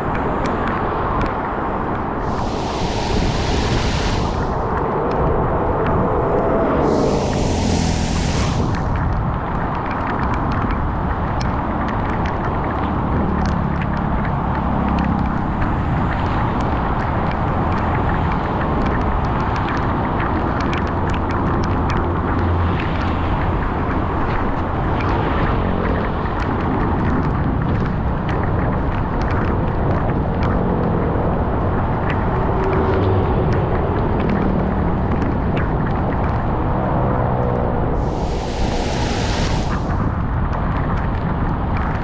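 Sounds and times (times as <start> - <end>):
heavy rain: 2.1 - 10.1, 37.9 - 40.3
water rushing into storm drain: 2.2 - 9.8, 38.0 - 40.2.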